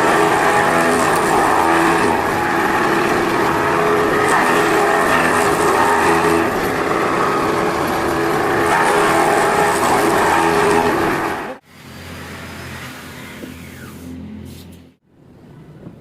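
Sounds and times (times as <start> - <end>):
motor whining: 0.0 - 11.6.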